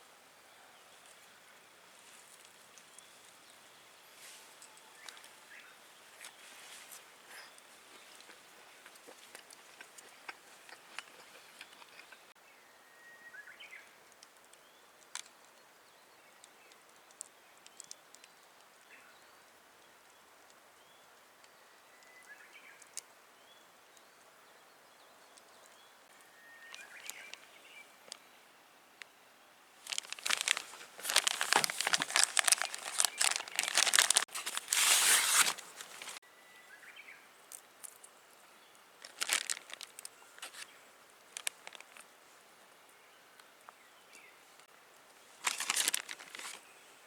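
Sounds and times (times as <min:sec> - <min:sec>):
faint bird chirps: 0:20.8 - 0:28.5
crinkly material rustling: 0:29.8 - 0:36.2, 0:39.0 - 0:40.7, 0:41.3 - 0:42.0, 0:45.3 - 0:46.7.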